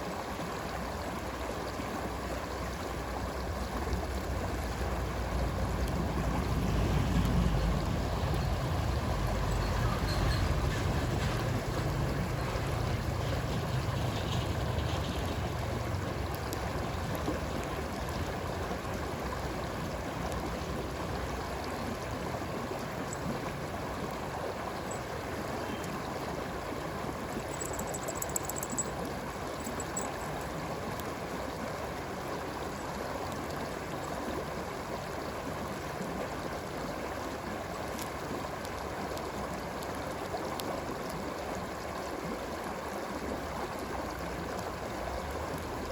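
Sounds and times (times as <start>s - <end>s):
stream flowing: 0.0s - 45.9s.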